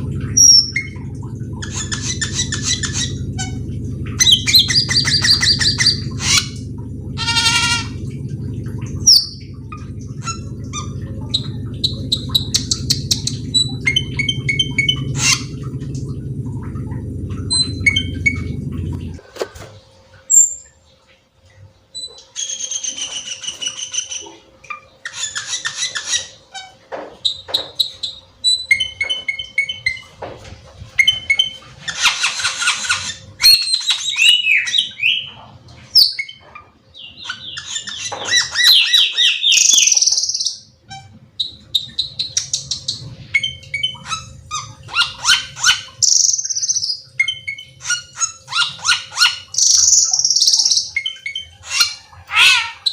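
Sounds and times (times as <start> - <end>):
bird singing whistled song: 33.4 - 35.3, 37.0 - 40.7.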